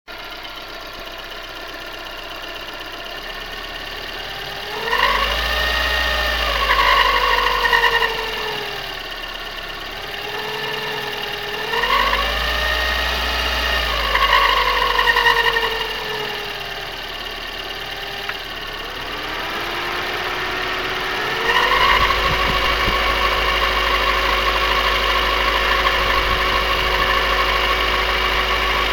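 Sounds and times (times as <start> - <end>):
car engine idling and revving: 0.1 - 28.9
whistle rising with engine speed: 4.6 - 8.8, 10.2 - 16.9, 18.6 - 28.9.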